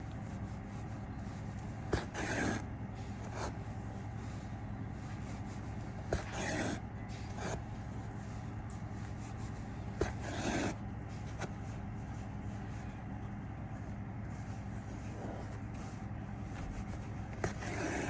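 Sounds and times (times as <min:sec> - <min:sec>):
steady low hum: 0:00.0 - 0:18.0
wool yarn scraping through rug: 0:00.7 - 0:03.6, 0:05.0 - 0:07.6, 0:16.6 - 0:18.0.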